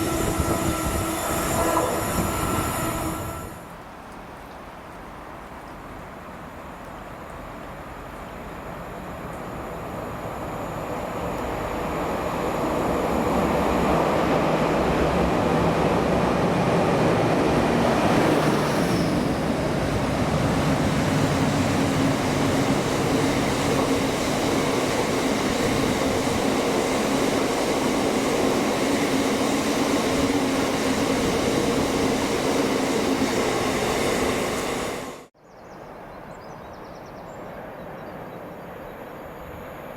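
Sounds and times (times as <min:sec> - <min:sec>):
train passing rumble: 0:00.0 - 0:35.3.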